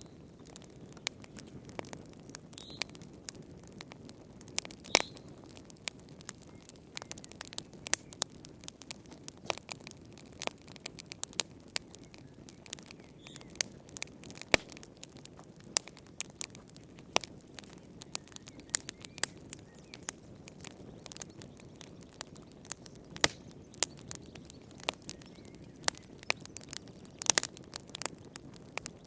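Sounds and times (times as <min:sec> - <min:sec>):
soft hiss of flames: 0:00.0 - 0:29.0
wood fire pops and snaps: 0:00.0 - 0:29.0.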